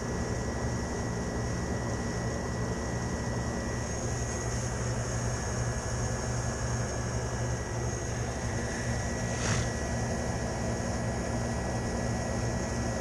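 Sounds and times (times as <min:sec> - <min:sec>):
condensing unit motor hum: 0:00.0 - 0:13.0
short hiss: 0:09.3 - 0:09.8.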